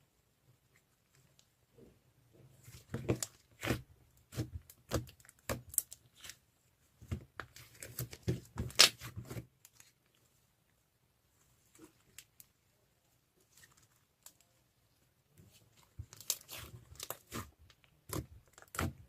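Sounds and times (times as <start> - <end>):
slime squished by hand: 15.5 - 19.0.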